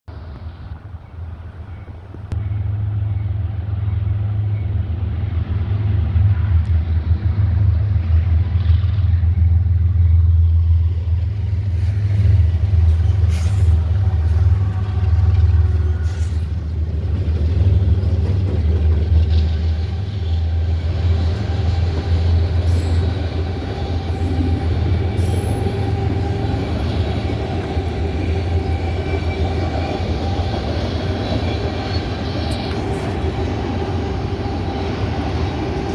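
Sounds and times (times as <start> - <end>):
diesel locomotives rumbling: 0.1 - 35.9
train wheels ringing on rails: 11.7 - 35.9.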